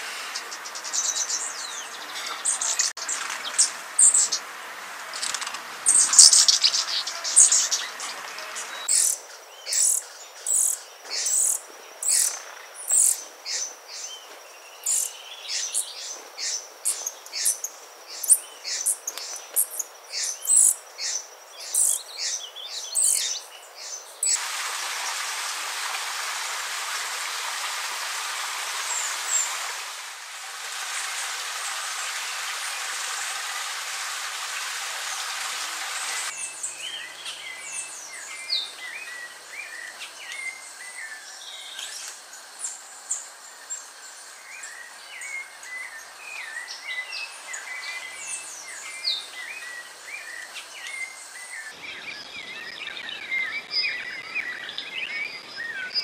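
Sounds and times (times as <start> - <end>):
steady hiss: 0.0 - 52.0
small bird chirping: 5.2 - 24.4.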